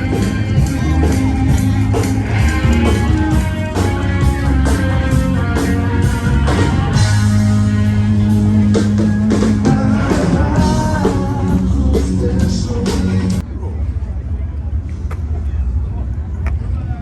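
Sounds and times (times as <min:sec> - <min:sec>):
guitar: 0:00.0 - 0:13.4
live rock band playing: 0:00.0 - 0:13.4.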